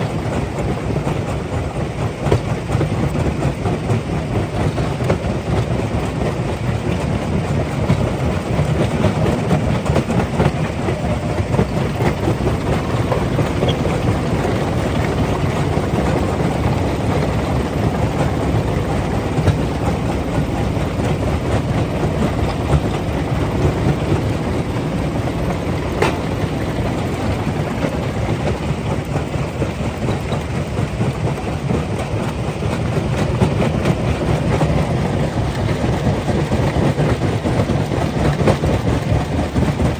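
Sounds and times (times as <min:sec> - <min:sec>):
rock crusher rumbling: 0:06.9 - 0:30.6.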